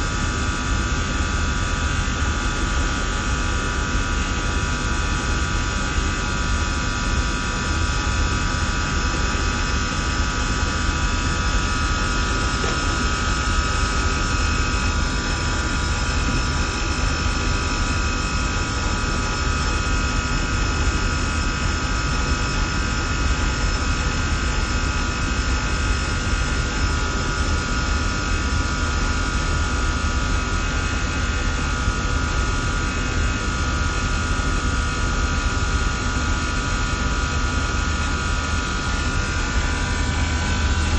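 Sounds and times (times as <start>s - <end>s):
steady whining tones: 36.5s - 40.9s.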